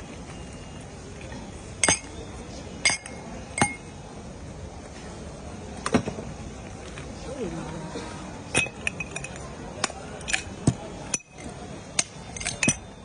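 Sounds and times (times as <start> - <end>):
steady background din: 0.0 - 13.0
metal utensil striking cookware: 1.8 - 2.1, 12.0 - 12.9.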